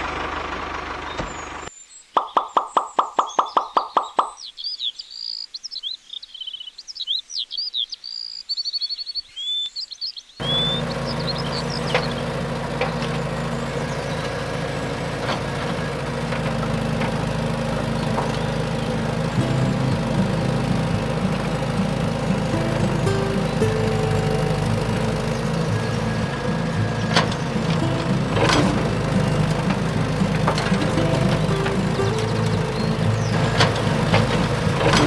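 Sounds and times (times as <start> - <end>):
birds chirping and trilling: 1.0 - 19.4, 20.0 - 27.8, 28.8 - 35.0
steady mechanical hum: 10.4 - 35.0.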